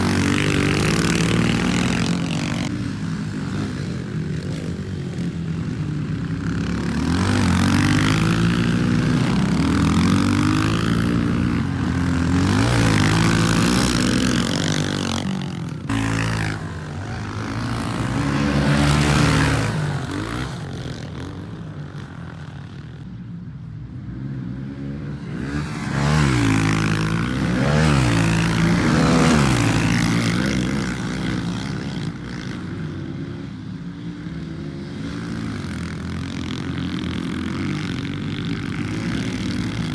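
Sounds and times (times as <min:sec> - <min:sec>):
pit bike engine revving: 0:00.0 - 0:22.8, 0:25.3 - 0:33.1.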